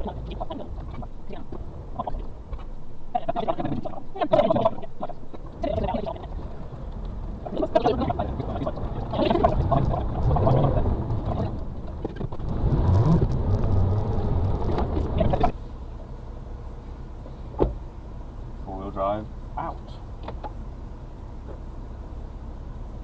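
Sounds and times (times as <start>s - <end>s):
cab rattling: 0.0s - 15.6s
truck engine: 0.0s - 18.0s.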